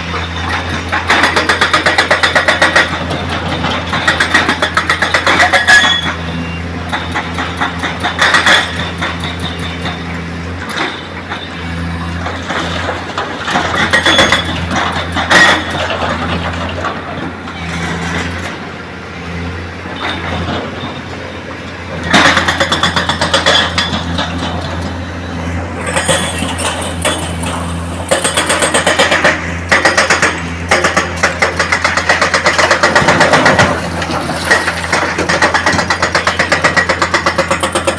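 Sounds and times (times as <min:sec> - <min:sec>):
loud rattling and clatter: 0:00.0 - 0:06.2, 0:25.6 - 0:37.9
diesel machinery engine running: 0:00.0 - 0:37.9.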